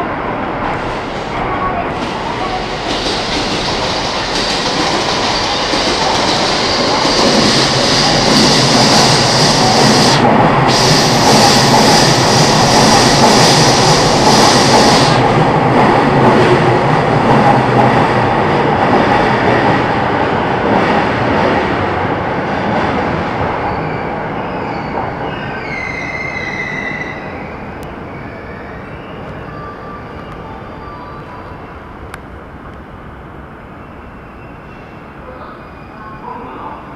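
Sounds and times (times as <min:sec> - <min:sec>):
train wheels on rail: 0:00.0 - 0:30.6
wavering brake squeal: 0:23.6 - 0:31.6.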